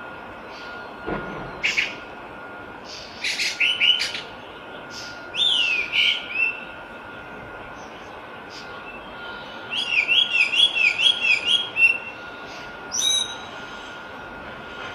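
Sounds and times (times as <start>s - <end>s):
faint steady tone: 0.0s - 3.2s, 6.2s - 9.8s.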